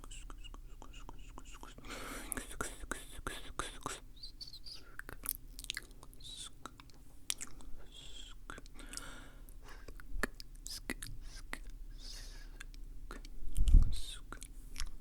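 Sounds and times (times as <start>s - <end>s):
soft breathy hisses: 0.0s - 4.0s, 10.7s - 12.6s
wet mouth clicks and smacks: 5.0s - 7.7s, 12.6s - 15.0s.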